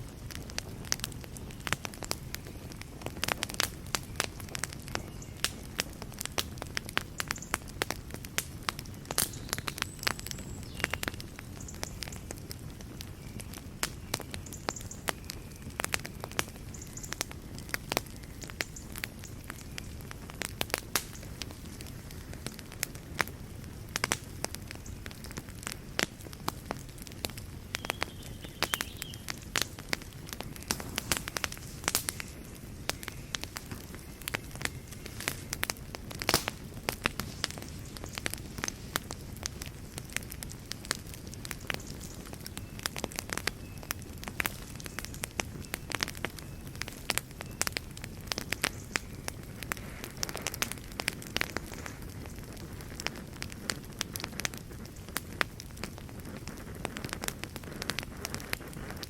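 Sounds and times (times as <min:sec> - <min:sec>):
fire crackling and popping: 0:00.0 - 0:59.0
low rush of flame: 0:15.1 - 0:59.0.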